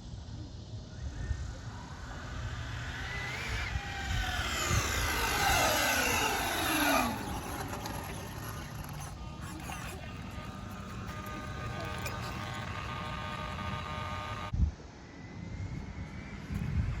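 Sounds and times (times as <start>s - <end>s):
rc car electric motor whining: 1.1s - 14.5s.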